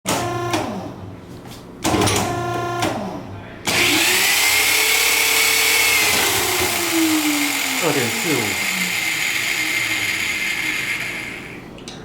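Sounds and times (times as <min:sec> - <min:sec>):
power drill whining: 0:03.7 - 0:11.6.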